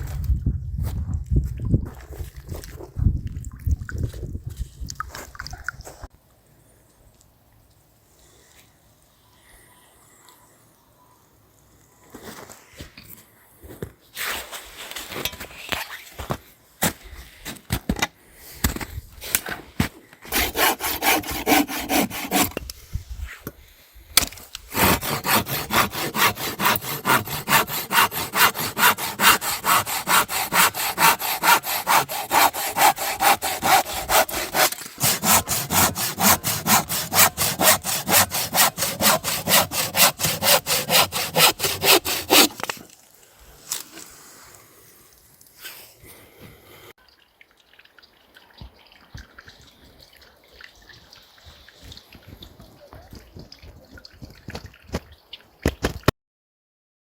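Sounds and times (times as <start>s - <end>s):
hand saw cutting wood: 20.2s - 22.6s, 24.7s - 42.9s.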